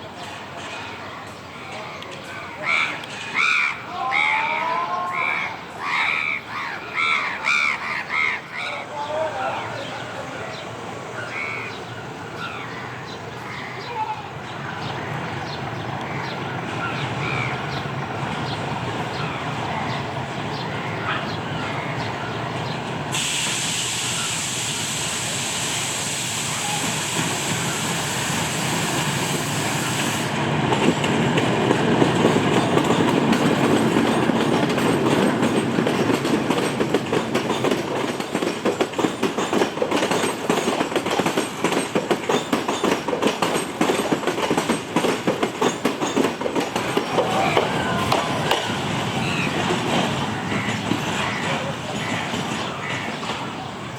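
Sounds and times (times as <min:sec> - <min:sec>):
train rumbling past: 0:00.0 - 0:53.9
train hiss: 0:22.5 - 0:31.3
wheels clattering over rail joints: 0:30.5 - 0:53.9.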